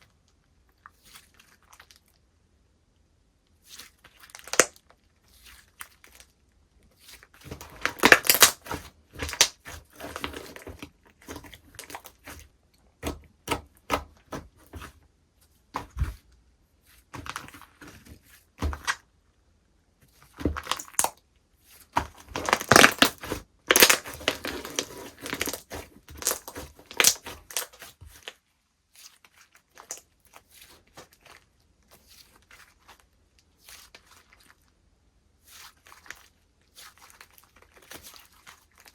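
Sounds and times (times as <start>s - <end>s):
slime crackling and crunching: 3.7s - 6.3s, 7.0s - 14.9s, 20.3s - 21.2s, 21.8s - 34.7s.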